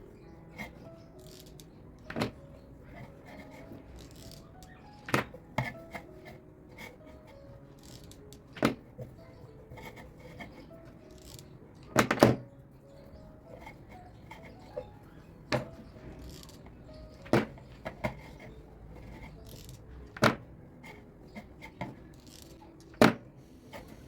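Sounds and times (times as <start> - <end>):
household objects knocking: 17.1 - 18.5.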